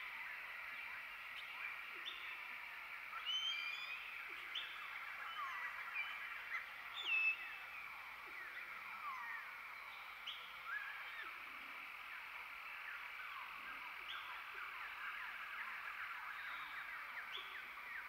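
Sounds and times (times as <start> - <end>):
dense bird chorus: 0.0 - 18.0
birds chirping and whistling: 3.2 - 7.8.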